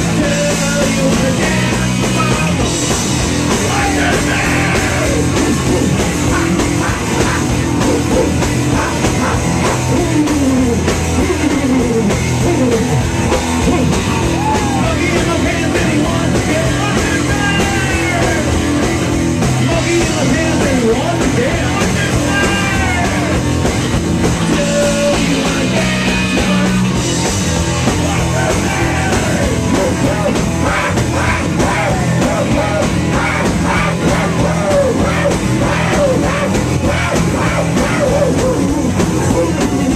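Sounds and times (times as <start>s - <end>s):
drum kit: 0.0s - 39.9s
guitar: 0.0s - 39.9s
person singing: 3.6s - 6.0s, 9.6s - 13.0s, 28.1s - 39.9s.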